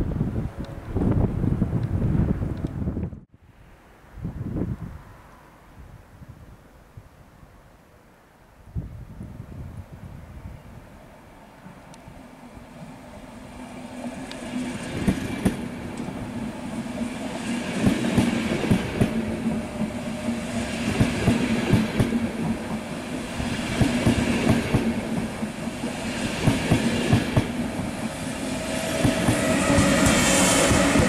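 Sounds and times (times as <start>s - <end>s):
train wheels clicking over rail joints: 14.2s - 16.3s, 17.5s - 31.0s.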